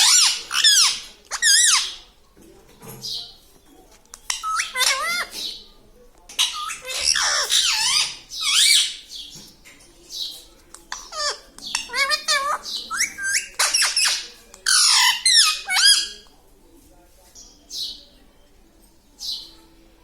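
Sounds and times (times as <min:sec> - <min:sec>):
parrot squawking and chattering: 0:00.0 - 0:02.0, 0:04.1 - 0:05.6, 0:06.3 - 0:09.1, 0:10.9 - 0:16.2.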